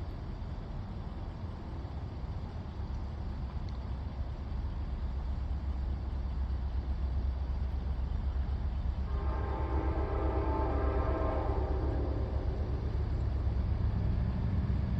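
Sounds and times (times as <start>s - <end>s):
train horn chord: 9.1s - 13.0s.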